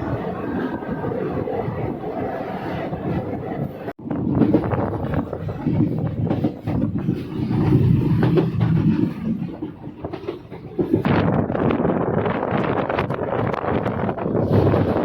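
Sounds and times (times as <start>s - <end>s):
moving passenger train rumble: 0.0s - 15.0s
wheels rattling and knocking: 2.9s - 15.0s.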